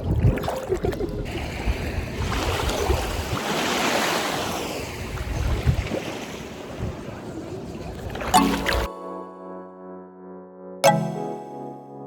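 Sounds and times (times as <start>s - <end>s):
wind rumbling on microphone: 0.0s - 3.6s, 4.5s - 8.3s.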